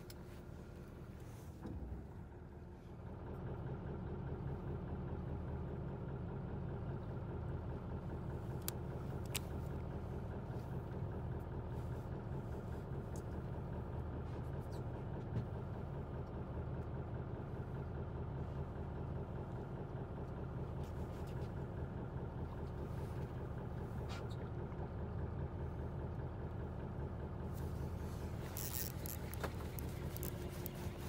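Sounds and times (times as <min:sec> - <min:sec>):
boat engine running: 0:20.9 - 0:31.0.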